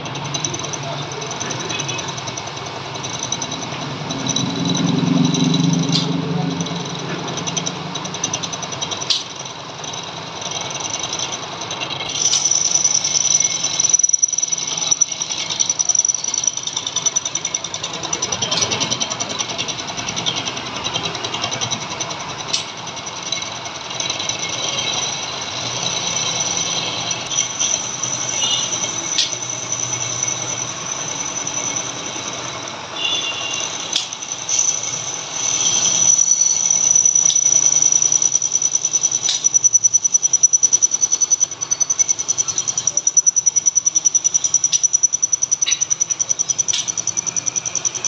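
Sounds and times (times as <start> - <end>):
metal lathe whining and rattling: 0.0 - 48.0
sharp clicks: 5.7 - 10.0, 25.8 - 32.8, 33.6 - 48.0.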